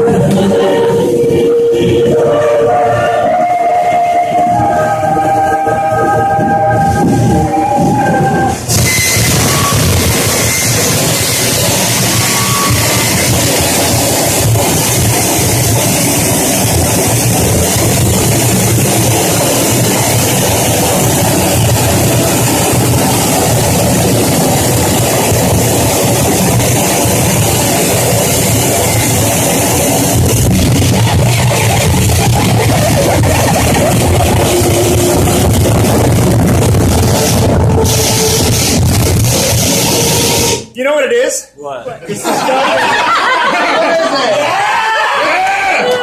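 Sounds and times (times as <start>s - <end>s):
distorted electronic noise music: 0.0s - 3.8s, 4.4s - 40.7s
feedback-like tones: 0.0s - 40.8s
rumbling noise drone: 4.0s - 40.6s.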